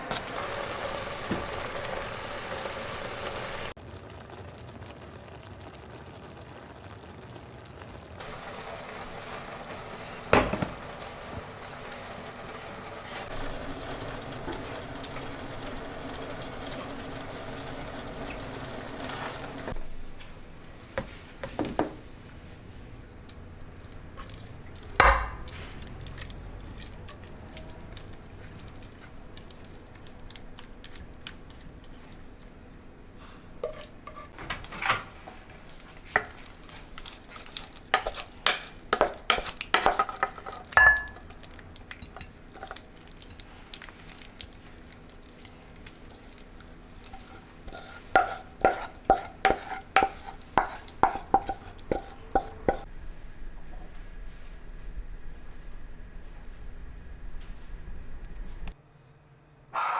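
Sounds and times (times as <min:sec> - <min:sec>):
metal spoon clinking on kitchenware: 0:25.0 - 0:25.5, 0:38.0 - 0:41.2.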